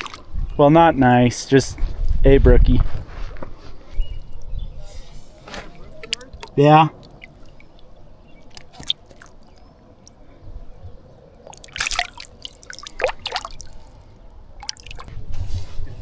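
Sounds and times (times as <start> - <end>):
stream water splashing: 4.0 - 10.2, 11.4 - 15.1.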